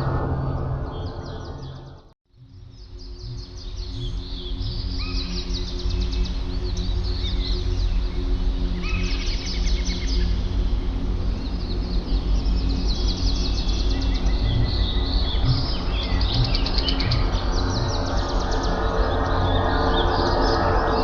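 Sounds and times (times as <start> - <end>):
steady low hum: 0.0 - 21.0
small songbirds chirping: 0.9 - 21.0.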